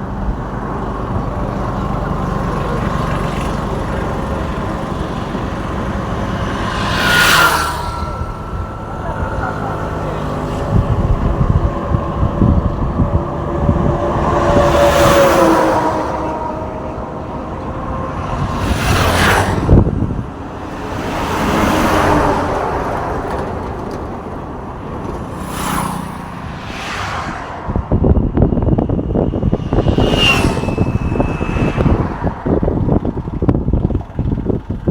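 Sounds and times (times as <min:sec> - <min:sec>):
steady low traffic rumble: 0:00.0 - 0:34.9
vehicles passing: 0:00.0 - 0:34.9.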